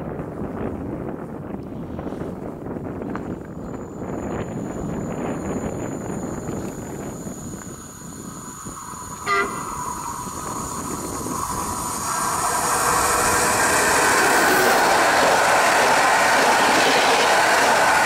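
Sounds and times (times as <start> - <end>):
train wheels rushing on rail: 1.6 - 18.0
short train horn toot: 9.3 - 9.7.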